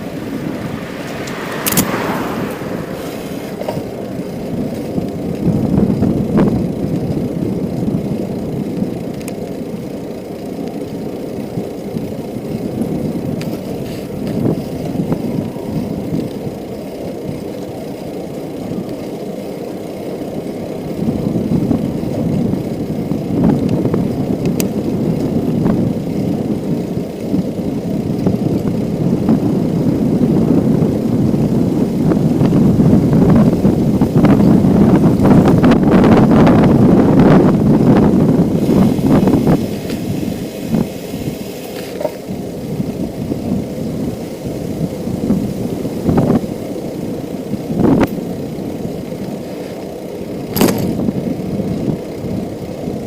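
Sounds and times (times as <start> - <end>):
wind buffeting microphone: 0.0 - 9.2, 11.4 - 18.1, 20.8 - 41.5, 42.2 - 49.1
bicycle tyres rolling: 0.0 - 53.0
bike knocks and rattles: 11.9 - 16.5, 41.7 - 42.3, 50.5 - 51.5.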